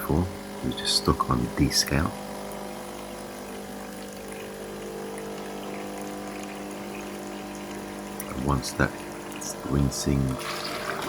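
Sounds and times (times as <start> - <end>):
coffee machine pump humming: 0.0 - 11.0.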